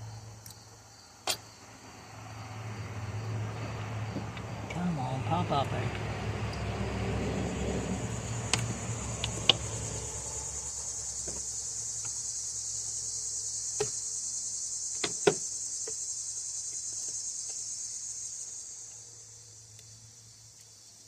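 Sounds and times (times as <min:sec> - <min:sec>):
high-pitched chirring hiss: 0:07.3 - 0:21.0.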